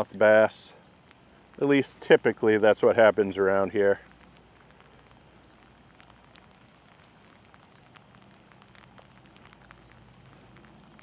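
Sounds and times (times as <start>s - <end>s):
rain falling on a lake: 0.0s - 11.0s
raindrops ticking: 0.0s - 11.0s.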